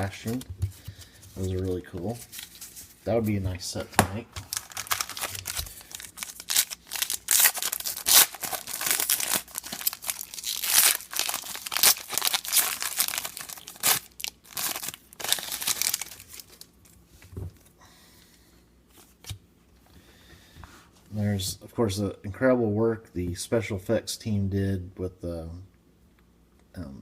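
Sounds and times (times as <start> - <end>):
foil wrapper tearing and crinkling: 4.4 - 16.7.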